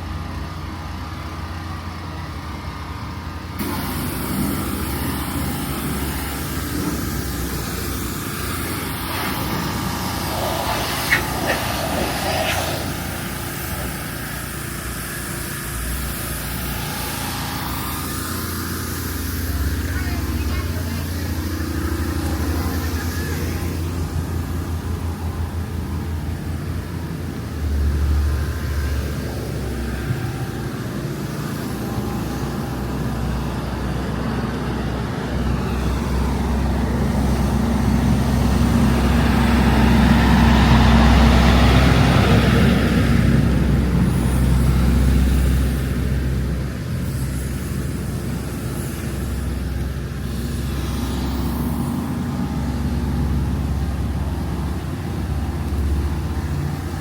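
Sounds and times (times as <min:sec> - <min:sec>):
steady low rumble: 0:01.8 - 0:57.0
vehicle passing by: 0:03.6 - 0:15.2, 0:15.8 - 0:46.8.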